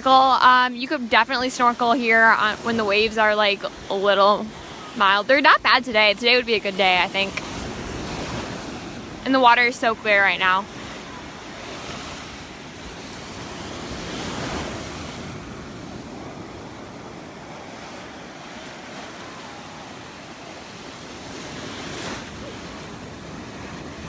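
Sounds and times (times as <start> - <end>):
surf washing onto beach: 0.0 - 24.0.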